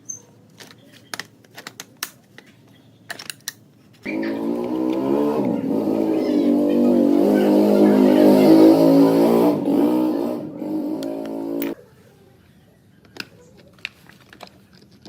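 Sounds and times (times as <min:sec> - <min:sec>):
machine motor humming: 0:04.1 - 0:11.8.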